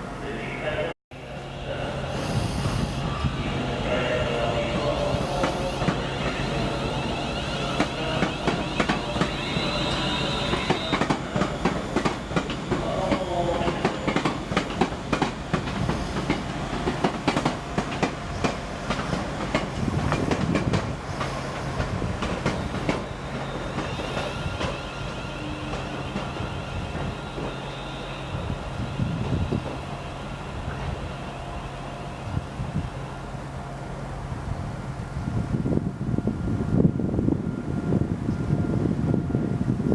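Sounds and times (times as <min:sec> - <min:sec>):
train wheels clicking over rails: 0:04.9 - 0:24.8.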